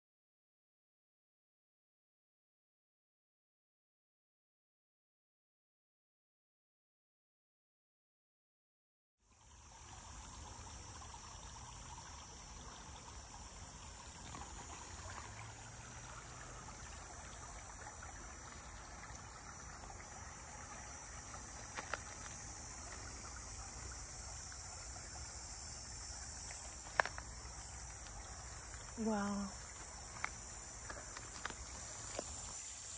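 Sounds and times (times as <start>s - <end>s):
insect chorus drone: 9.2s - 32.9s.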